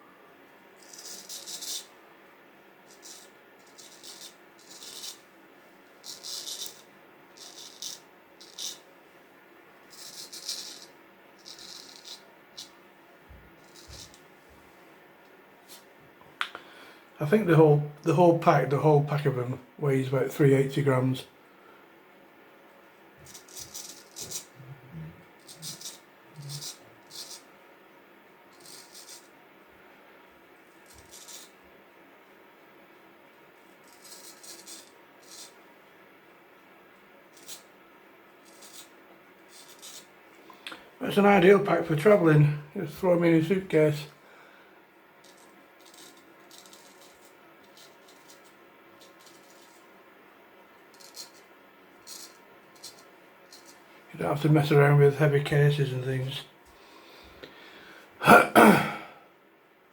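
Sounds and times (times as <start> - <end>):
razors rattling and rustling: 0.8 - 1.9, 2.9 - 5.2, 6.0 - 8.8, 9.9 - 12.8, 13.5 - 14.2, 23.2 - 24.6, 25.4 - 27.4, 30.7 - 31.6, 33.8 - 35.6, 38.4 - 40.2, 45.2 - 49.9, 50.9 - 53.9.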